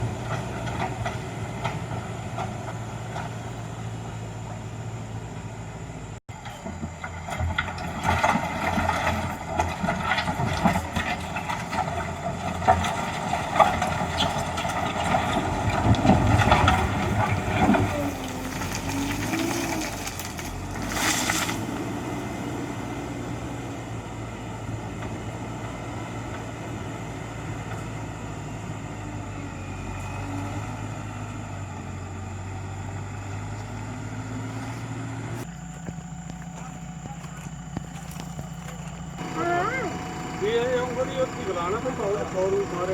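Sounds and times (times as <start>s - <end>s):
diesel engine running: 0.0s - 42.9s
knocks and rattles: 6.4s - 20.5s.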